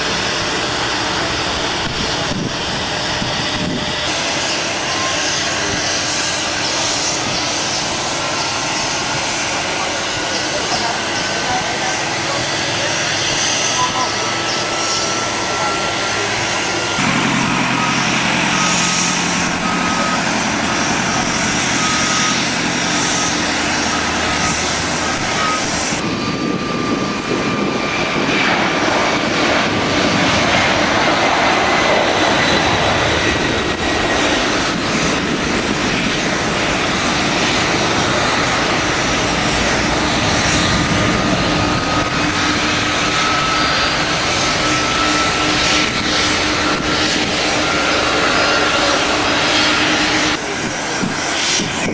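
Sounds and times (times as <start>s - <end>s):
jet engines running: 0.0s - 51.9s
thin high whine: 13.6s - 26.0s.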